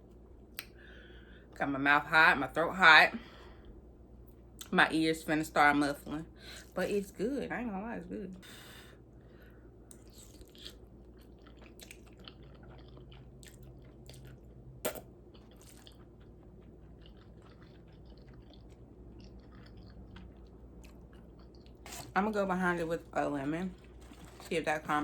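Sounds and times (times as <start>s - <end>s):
person chewing noodles: 9.2s - 22.2s, 23.7s - 24.5s.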